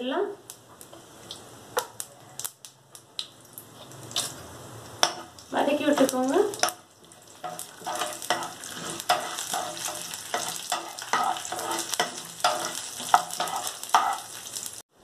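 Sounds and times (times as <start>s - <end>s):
oil sizzling: 0.4s - 15.0s
spatula scraping a pan: 5.0s - 14.7s.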